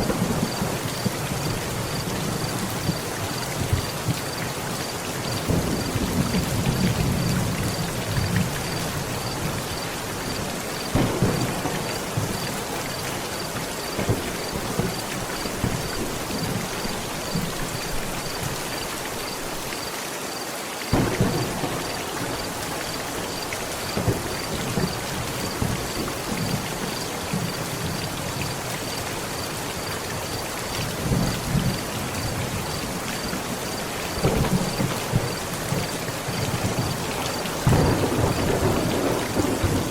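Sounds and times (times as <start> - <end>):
sharp thunder crack: 0.0 - 1.5, 10.9 - 12.5, 20.9 - 22.5, 37.6 - 39.9
thunder rumbling: 0.0 - 4.2, 5.2 - 18.1, 20.9 - 28.0, 33.9 - 39.9
heavy rain on a tent: 0.0 - 39.9.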